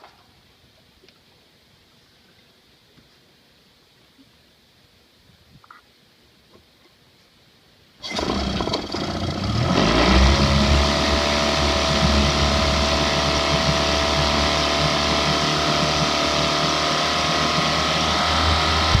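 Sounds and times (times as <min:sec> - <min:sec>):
outboard motor running: 0:08.0 - 0:19.0.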